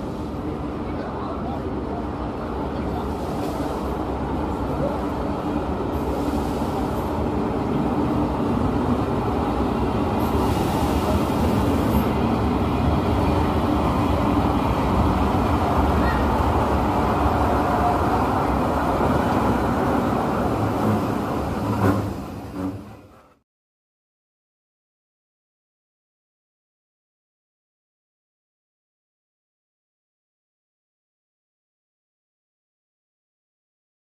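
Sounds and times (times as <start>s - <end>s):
diesel train passing: 0.0s - 23.4s.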